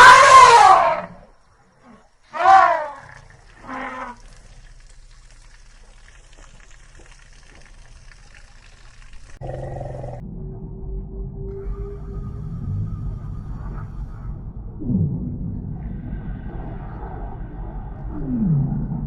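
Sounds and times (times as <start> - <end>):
steady tone: 10.2 - 19.0.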